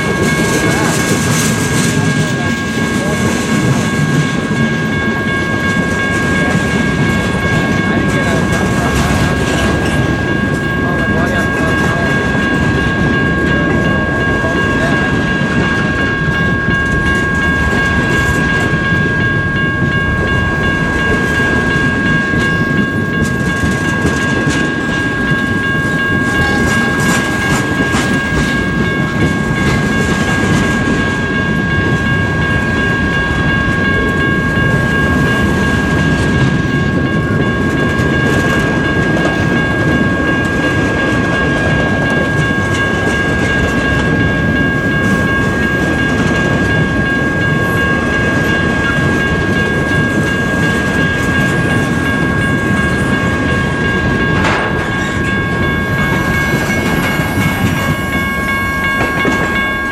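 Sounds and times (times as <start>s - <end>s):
freight train wheels rumbling: 0.0s - 59.9s
steady high tone: 0.0s - 59.9s.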